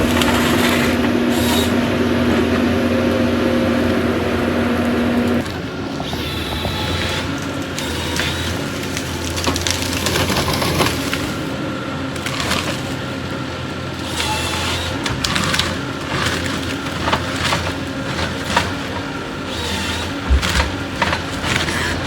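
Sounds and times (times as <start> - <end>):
wood cracking and splintering: 0.0 - 1.8, 5.4 - 13.2, 14.1 - 22.0
diesel engine under load: 0.0 - 22.0.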